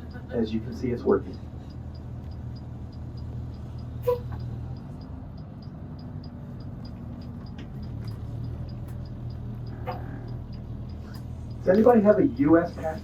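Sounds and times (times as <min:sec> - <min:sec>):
bus engine humming: 0:00.0 - 0:13.0
light ticking: 0:00.0 - 0:13.0
brief squeak: 0:04.0 - 0:04.4.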